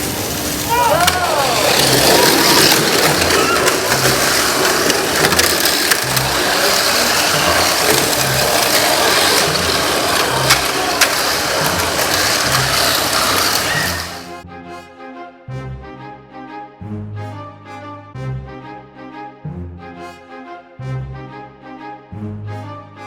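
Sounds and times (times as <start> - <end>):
music: 0.0 - 23.0
toy car motor buzzing rattle: 0.4 - 14.4
scattered clicks: 1.0 - 14.4.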